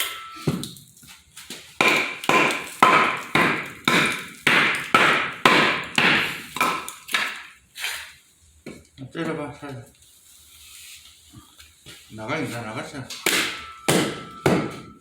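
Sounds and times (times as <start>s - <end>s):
hatchet chopping log: 1.8s - 7.4s, 13.1s - 15.0s.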